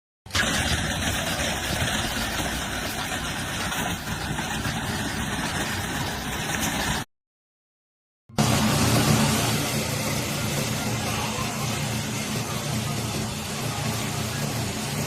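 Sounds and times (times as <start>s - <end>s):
machinery engine running: 0.3s - 7.0s, 8.3s - 15.0s.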